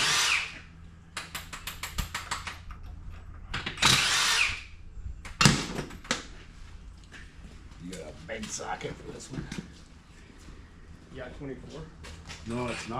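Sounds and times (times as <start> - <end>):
impact wrench on lug nuts: 3.5 - 6.2.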